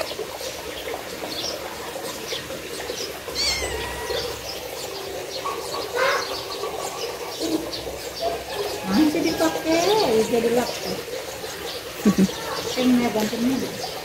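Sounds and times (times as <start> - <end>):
outdoor background: 0.0 - 14.0
faint bird chirps: 3.3 - 6.3.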